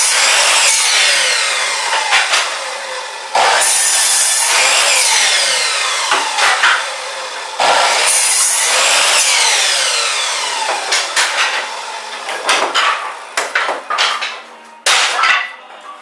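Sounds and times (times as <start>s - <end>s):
chop saw cutting wood: 0.0s - 14.3s
wood knocking and clattering: 10.7s - 15.6s.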